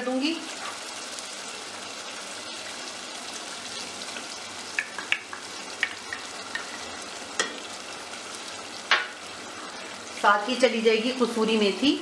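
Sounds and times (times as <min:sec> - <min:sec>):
gravy sizzling in a pot: 0:00.0 - 0:12.0
sharp pops and clicks: 0:04.7 - 0:06.2.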